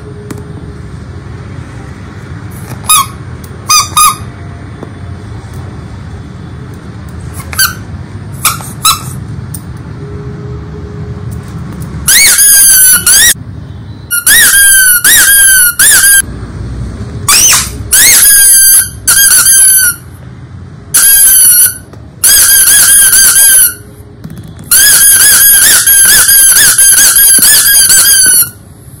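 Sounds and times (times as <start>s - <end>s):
rubber squeaky toys squeaking: 2.6s - 4.4s, 7.3s - 9.2s, 14.1s - 16.2s, 17.3s - 20.1s, 24.7s - 28.6s.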